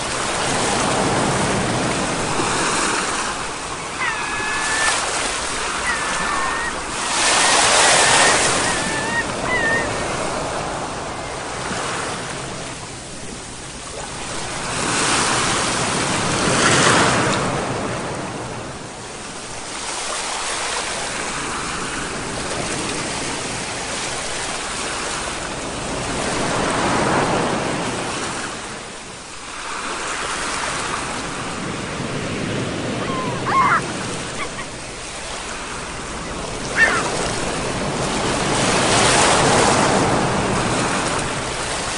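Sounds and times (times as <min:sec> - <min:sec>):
ocean surf breaking: 0:00.0 - 0:41.9.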